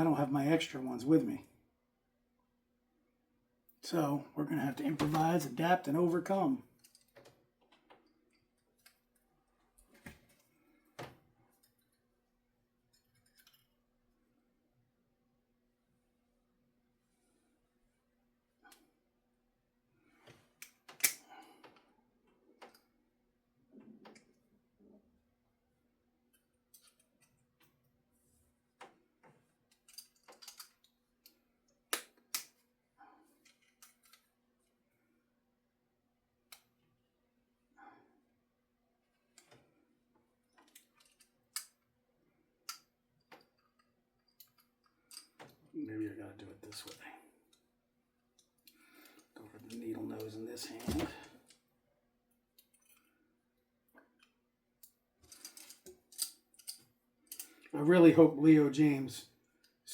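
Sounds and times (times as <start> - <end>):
small metal parts clicking: 6.8 - 7.3, 12.9 - 13.7, 26.7 - 27.4, 29.7 - 32.6, 33.4 - 34.3, 40.5 - 41.8, 42.6 - 45.5, 54.2 - 57.7.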